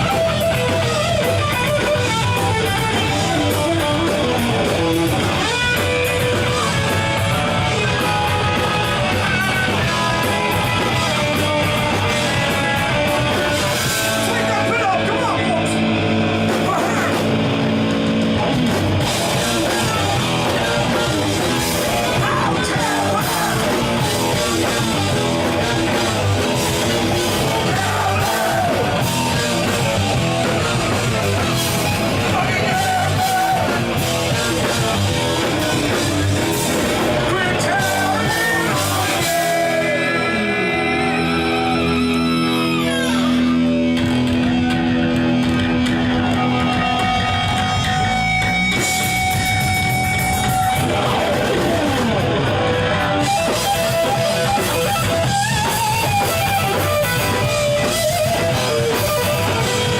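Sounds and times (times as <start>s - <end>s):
punk rock band playing: 0.0s - 59.9s
guitar sliding down in pitch: 15.7s - 59.9s
shouted vocals: 16.5s - 17.3s, 19.3s - 34.9s, 35.5s - 43.7s.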